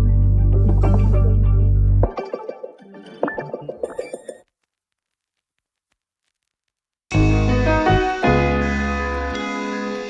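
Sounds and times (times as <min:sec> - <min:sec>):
instrumental rnb music: 0:00.0 - 0:03.8.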